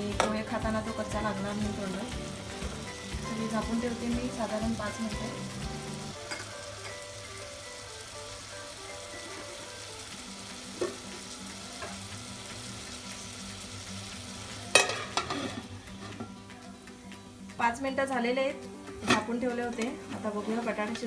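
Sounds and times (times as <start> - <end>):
vegetables sizzling in oil: 0.0 - 21.0
metal lid clanking onto pot: 14.7 - 15.7.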